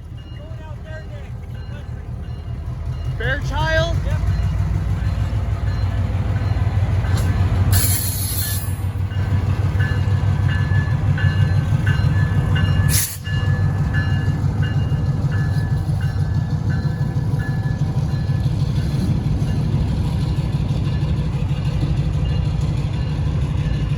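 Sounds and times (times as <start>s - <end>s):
crossing bell ringing: 0.0s - 23.9s
locomotive diesel engine rumbling: 0.0s - 23.9s.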